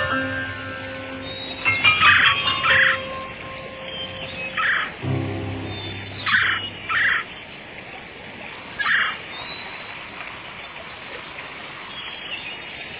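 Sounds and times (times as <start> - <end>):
harsh bird calls: 3.9 - 7.4
low held musical note: 5.0 - 8.2.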